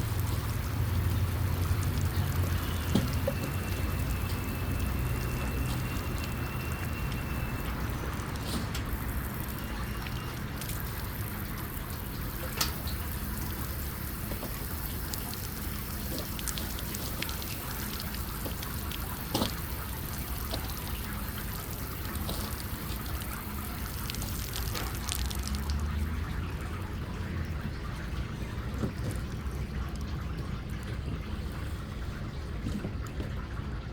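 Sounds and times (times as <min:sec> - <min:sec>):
water splashing and trickling: 0:00.0 - 0:33.9.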